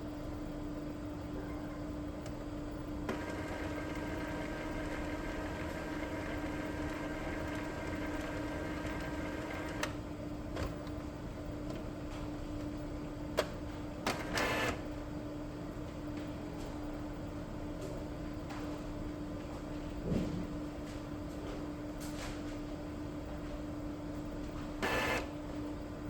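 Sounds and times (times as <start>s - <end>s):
printer low hum: 1.3s - 16.1s, 23.0s - 26.0s
printer motor whine: 3.0s - 10.0s, 14.1s - 14.9s, 24.8s - 25.6s.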